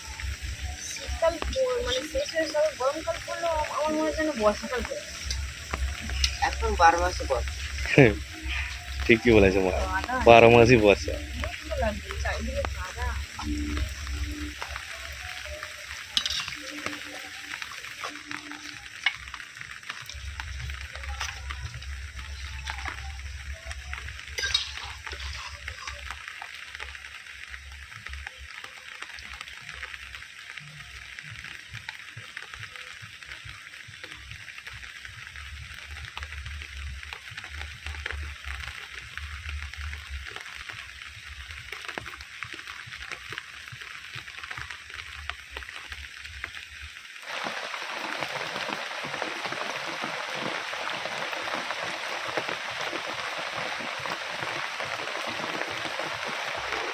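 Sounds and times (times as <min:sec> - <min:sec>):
low hum: 0:00.0 - 0:26.2
heavy rain: 0:00.0 - 0:56.9
raindrop ticks: 0:00.0 - 0:56.9
steady rain: 0:00.0 - 0:56.9.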